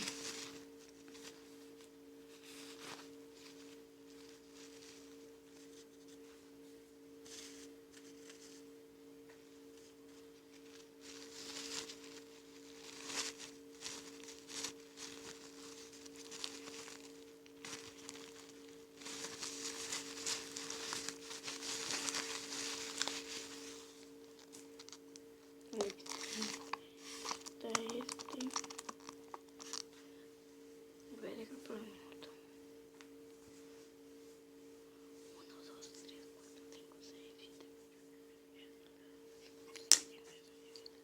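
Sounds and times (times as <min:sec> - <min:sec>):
crinkling and rustling packaging: 0:00.0 - 0:06.3, 0:09.6 - 0:30.0
steady two-pitch hum: 0:00.0 - 0:41.0.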